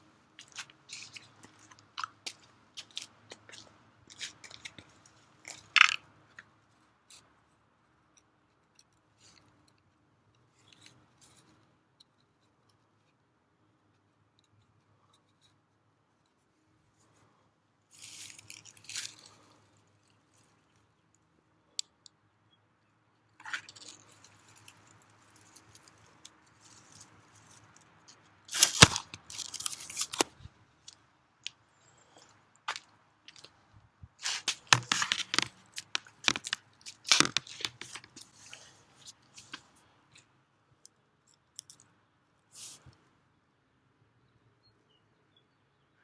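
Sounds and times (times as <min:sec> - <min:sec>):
dry grass crunching and rustling: 0:18.0 - 0:19.3, 0:34.2 - 0:38.8.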